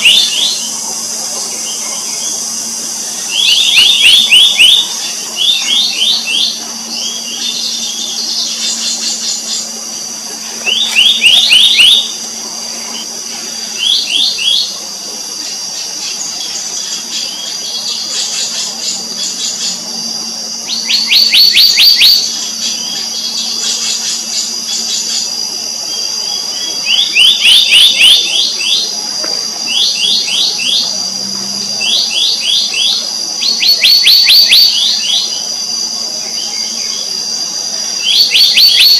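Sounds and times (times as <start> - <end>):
birds calling ringing notes: 0.0 - 14.9
high insect drone: 0.0 - 38.9.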